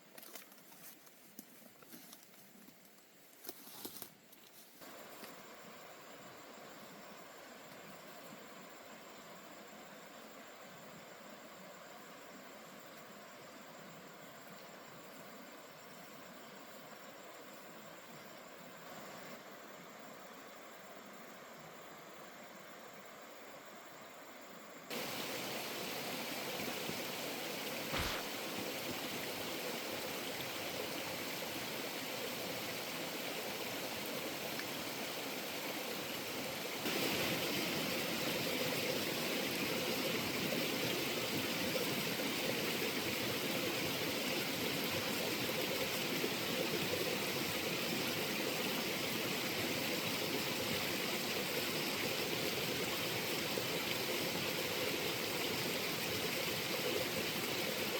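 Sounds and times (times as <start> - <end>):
flowing water rushing: 24.9 - 57.9
short knock: 27.9 - 28.3.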